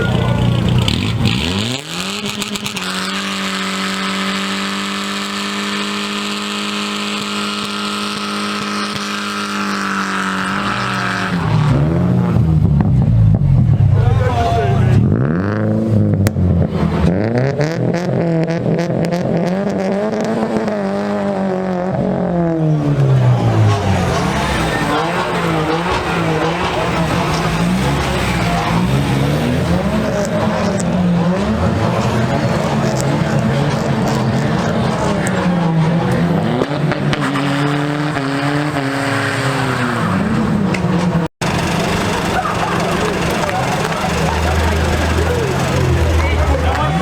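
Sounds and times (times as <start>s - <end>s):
car engine revving hard: 0.0s - 47.0s
tyres squealing on tarmac: 8.4s - 12.3s, 22.8s - 33.2s, 41.4s - 47.0s.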